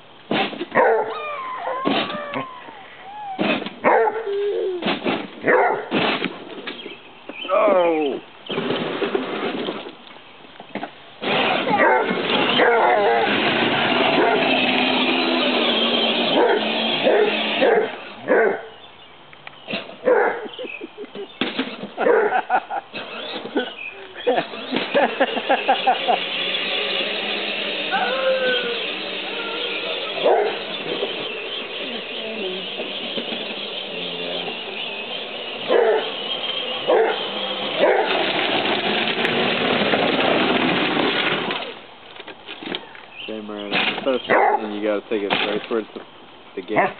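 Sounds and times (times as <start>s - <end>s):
dog barking: 0.8s - 1.1s, 3.8s - 4.3s, 5.5s - 5.9s, 11.8s - 13.2s, 14.2s - 14.5s, 16.4s - 18.7s, 20.0s - 20.5s, 22.0s - 22.4s, 30.2s - 30.6s, 35.7s - 36.1s, 36.9s - 37.2s, 44.3s - 44.7s
vehicle driving: 8.4s - 46.8s.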